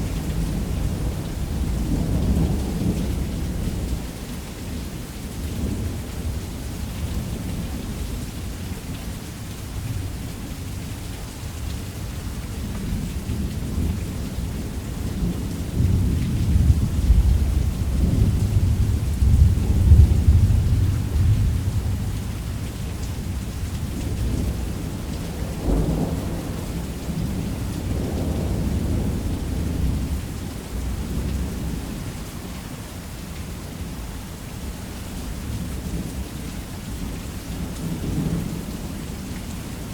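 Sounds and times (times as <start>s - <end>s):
steady rain: 0.0s - 39.9s
rolling thunder: 15.0s - 22.5s, 24.0s - 30.2s.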